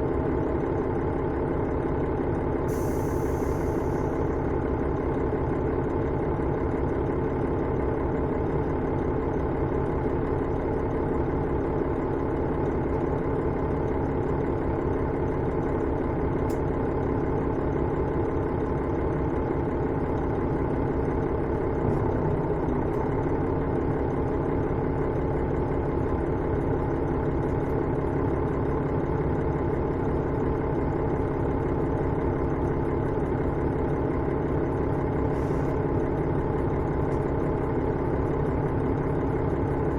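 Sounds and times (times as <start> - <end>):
railcar diesel engine hum: 0.0 - 39.9.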